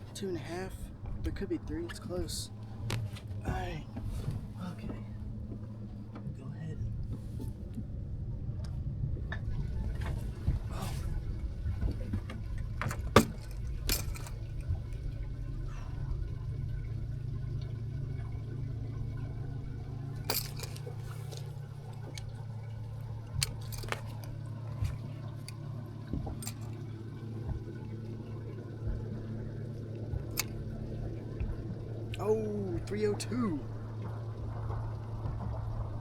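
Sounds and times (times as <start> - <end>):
steady low hum: 0.0 - 36.0
water sloshing: 8.8 - 36.0
sharp knocks and clicks: 12.2 - 14.4.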